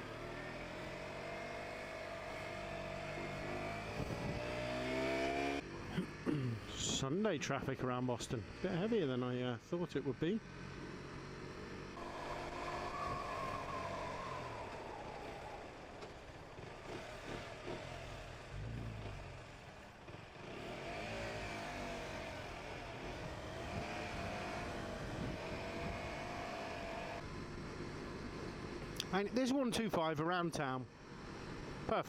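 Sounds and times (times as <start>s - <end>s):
motorcycle engine revving: 0.0s - 7.0s, 10.1s - 27.4s.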